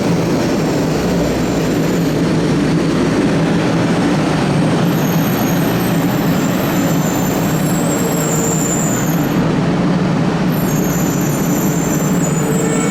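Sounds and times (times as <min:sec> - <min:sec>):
train mechanical rumble: 0:00.0 - 0:12.9
thin high whines: 0:10.6 - 0:12.9.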